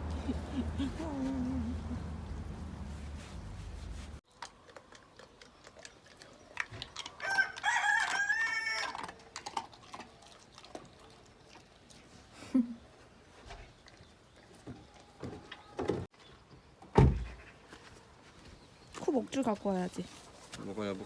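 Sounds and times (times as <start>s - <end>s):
low steady rumble: 0.0s - 4.2s
rooster crowing: 7.2s - 9.0s.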